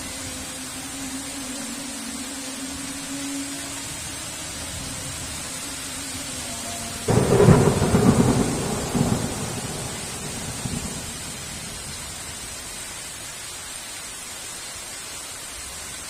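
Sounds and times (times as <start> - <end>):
heavy rain: 0.0 - 16.0
thunder clap and rumble: 7.1 - 12.5.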